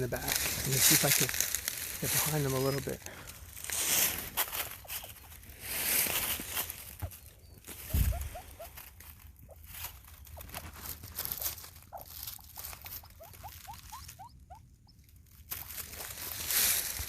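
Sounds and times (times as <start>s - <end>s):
steps rustling in leaves: 0.0s - 17.0s
bird giving rising peeps: 3.8s - 15.1s.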